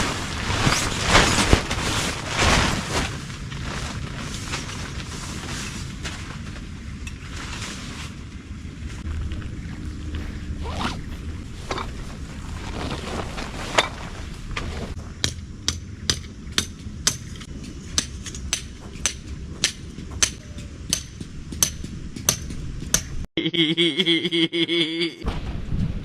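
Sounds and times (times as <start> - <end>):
wind rumble on microphone: 0.0 - 15.2, 25.2 - 26.0.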